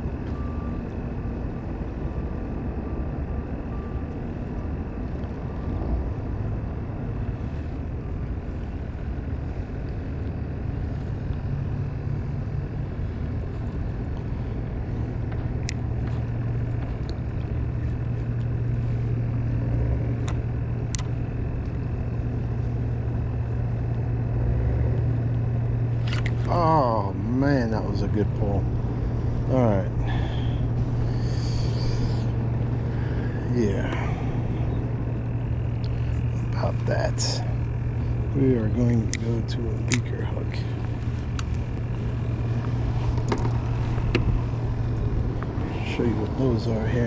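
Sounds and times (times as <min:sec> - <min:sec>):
boat engine humming: 0:00.0 - 0:47.0
wind: 0:00.0 - 0:47.0.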